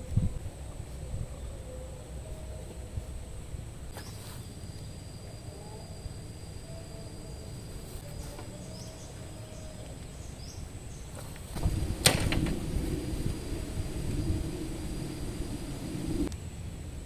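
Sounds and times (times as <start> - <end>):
wind gust rumbling on microphone: 0.0 - 3.9, 8.5 - 16.3
faint high bird chirps: 4.0 - 11.3.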